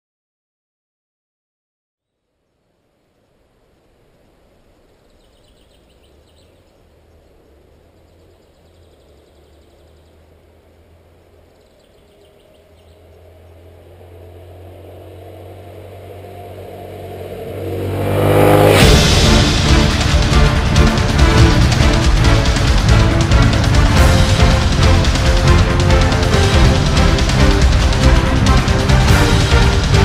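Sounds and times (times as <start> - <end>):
motorcycle engine approaching: 6.1 - 30.0.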